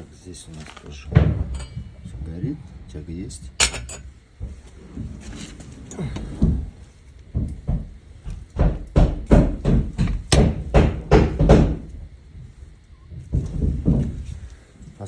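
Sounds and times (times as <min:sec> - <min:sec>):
sharp knocks: 0:07.3 - 0:12.0.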